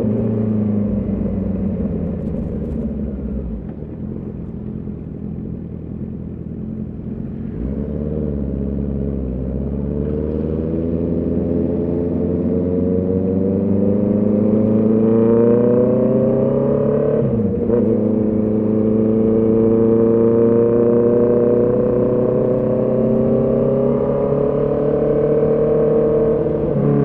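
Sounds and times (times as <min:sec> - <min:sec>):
motorcycle engine revving: 0:06.6 - 0:27.0.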